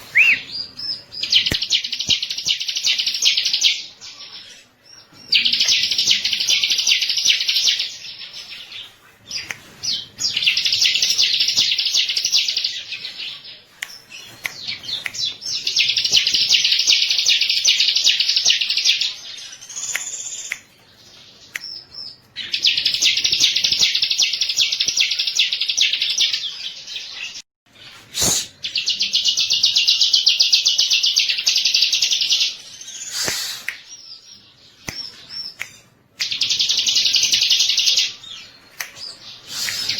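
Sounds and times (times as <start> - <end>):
bird trilling song: 0.0 - 3.9.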